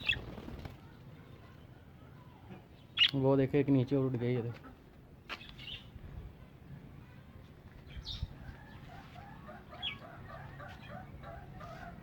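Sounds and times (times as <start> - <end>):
chickens clucking: 8.3 - 12.0.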